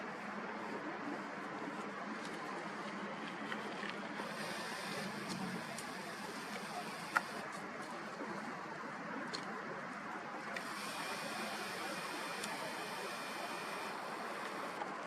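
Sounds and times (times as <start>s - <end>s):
wind: 0.0s - 15.0s
water rushing: 4.1s - 7.5s, 10.3s - 15.0s.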